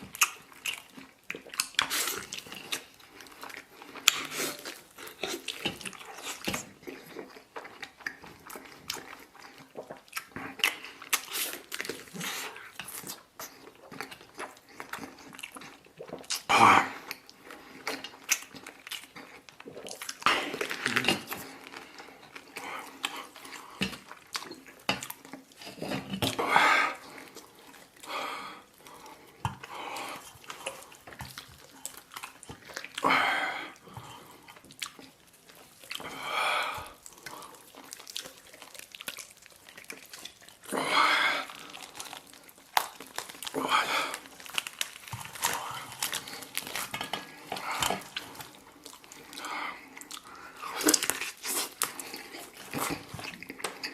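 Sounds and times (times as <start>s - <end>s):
wet chewing and smacking: 0.0s - 53.9s.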